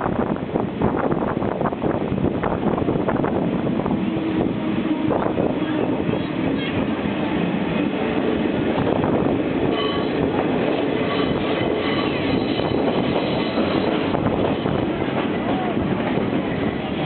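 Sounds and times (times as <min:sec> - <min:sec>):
train rolling rumble: 0:00.0 - 0:17.0
faint high wheel squeals: 0:09.7 - 0:10.2.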